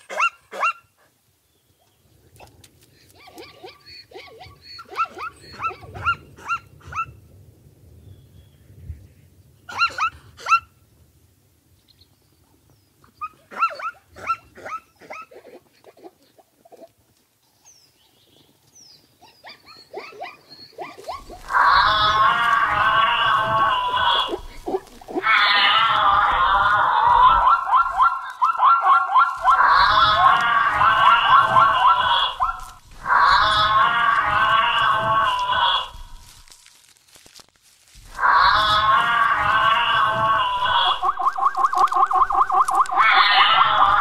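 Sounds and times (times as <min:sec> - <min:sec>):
zebra yelping calls: 0:19.9 - 0:36.4, 0:38.0 - 0:44.0.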